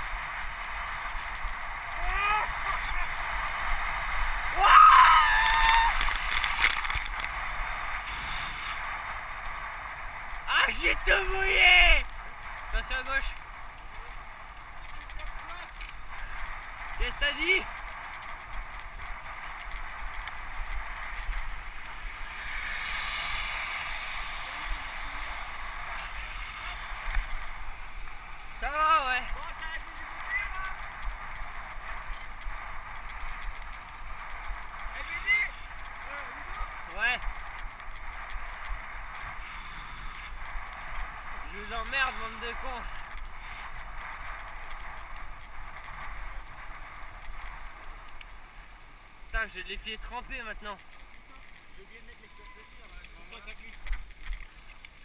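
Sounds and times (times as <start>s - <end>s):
water spraying and splashing: 0.0s - 13.0s, 13.8s - 41.1s
bicycle tyres rolling on wet trail: 0.0s - 55.0s
bike clicks and rattles: 0.0s - 55.0s.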